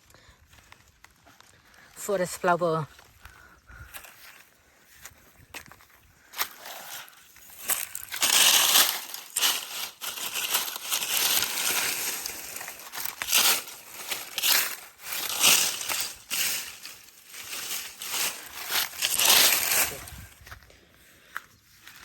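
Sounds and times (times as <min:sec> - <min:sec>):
dry leaves crunching: 0:05.0 - 0:20.6.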